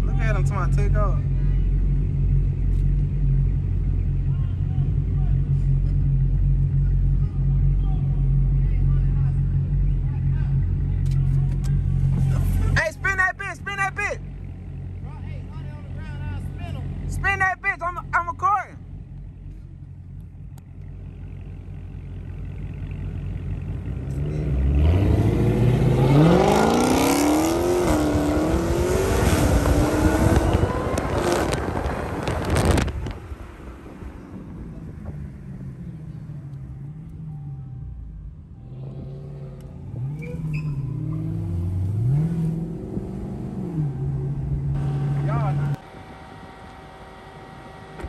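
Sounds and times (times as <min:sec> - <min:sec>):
car engine idling: 0:00.0 - 0:24.6, 0:43.8 - 0:48.0
car engine revving: 0:00.0 - 0:48.0.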